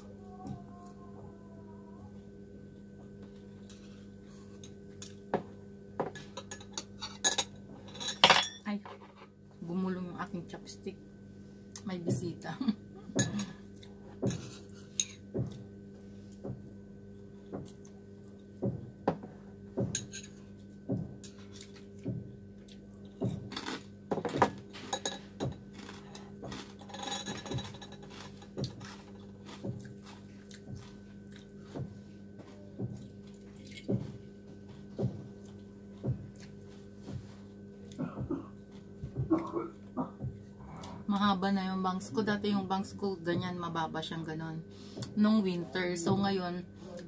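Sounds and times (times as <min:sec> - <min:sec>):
steady low hum: 0:00.0 - 0:47.0
chewing: 0:25.7 - 0:31.8, 0:32.9 - 0:34.0.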